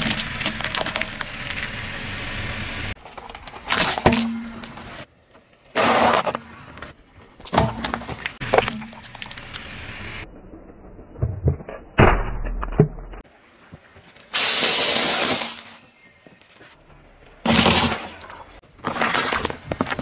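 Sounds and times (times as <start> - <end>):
objects crunching under car tyres: 0.0 - 10.2, 14.4 - 20.0.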